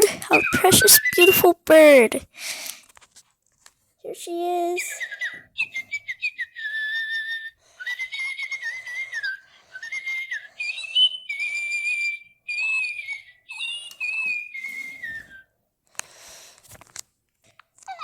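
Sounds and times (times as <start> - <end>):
electronic toy bird whistling: 5.0 - 15.4.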